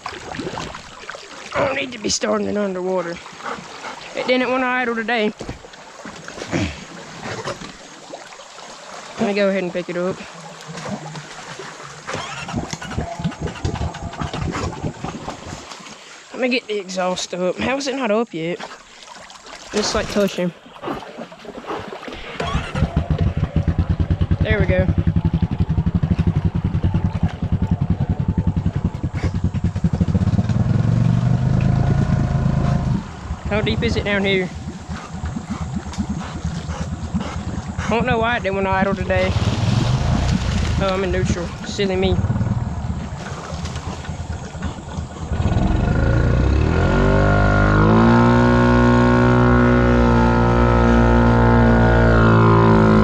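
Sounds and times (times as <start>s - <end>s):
atv engine running: 12.1s - 15.1s, 22.2s - 53.0s.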